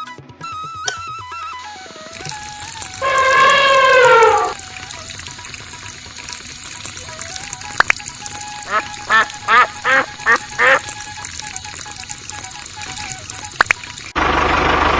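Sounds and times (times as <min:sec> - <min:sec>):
short animal-like calls: 0:02.9 - 0:04.6.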